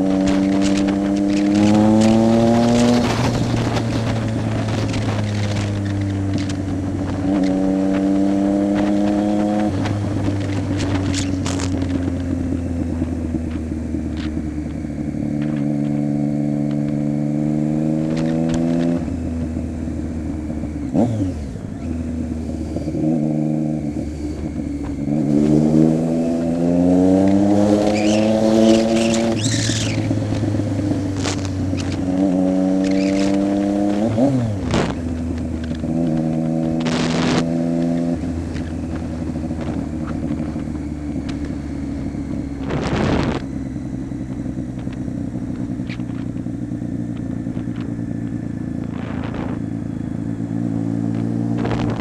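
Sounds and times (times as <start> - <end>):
motorcycle engine idling and revving: 0.0 - 52.0
exhaust cracks: 0.2 - 7.6, 27.7 - 52.0.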